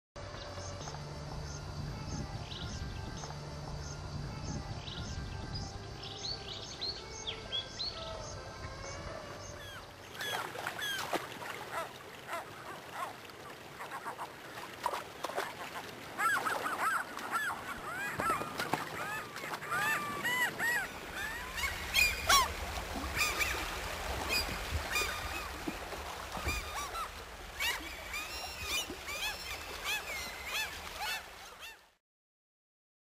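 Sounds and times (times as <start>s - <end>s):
flock of birds calling: 15.6s - 31.8s.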